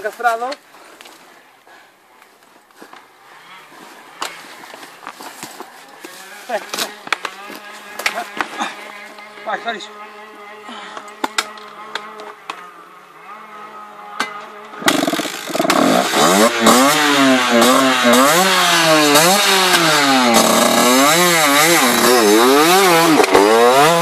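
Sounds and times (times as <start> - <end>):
dirt bike engine revving: 5.6 - 24.0.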